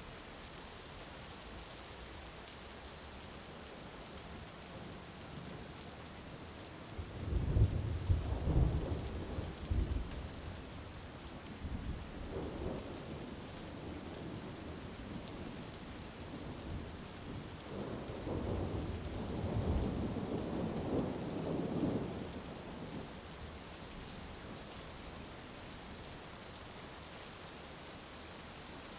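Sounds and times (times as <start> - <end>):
heavy rain: 0.0 - 28.9
rolling thunder: 7.2 - 10.2.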